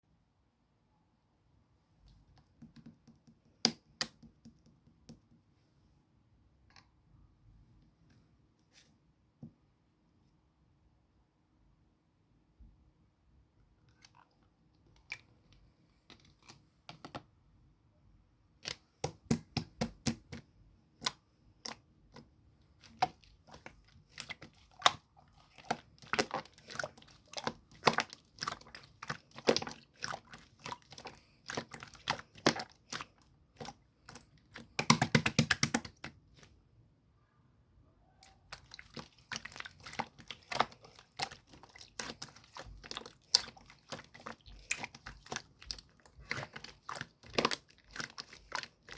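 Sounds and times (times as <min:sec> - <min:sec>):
slime squished by hand popping: 0:34.6 - 0:36.1.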